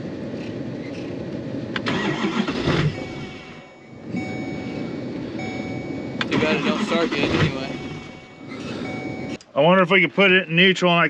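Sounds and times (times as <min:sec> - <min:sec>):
starter cranking diesel engine: 0:01.7 - 0:09.4.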